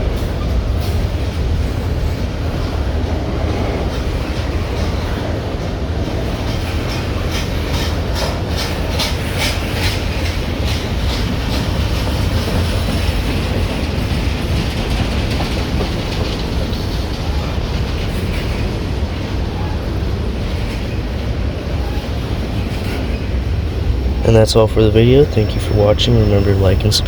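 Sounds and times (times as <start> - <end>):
wheels clacking over rail joints: 0.0 - 24.2
freight train rumbling: 0.0 - 27.0.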